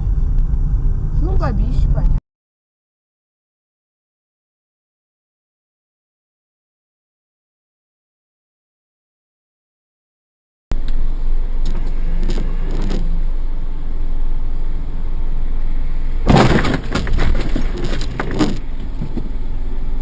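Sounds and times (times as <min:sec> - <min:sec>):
vehicle engine rumble: 0:00.0 - 0:02.2, 0:10.7 - 0:20.0
loud bangs and clatter: 0:16.3 - 0:19.2.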